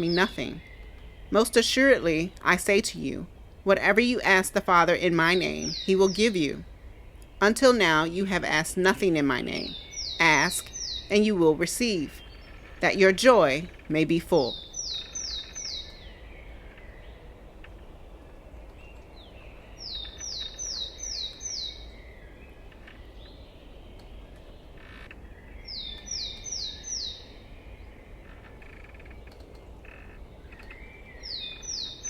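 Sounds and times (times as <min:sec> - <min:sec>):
songbird singing high notes: 0:00.0 - 0:06.7, 0:07.3 - 0:16.6, 0:25.5 - 0:27.6
faint bird chirps: 0:04.9 - 0:32.0.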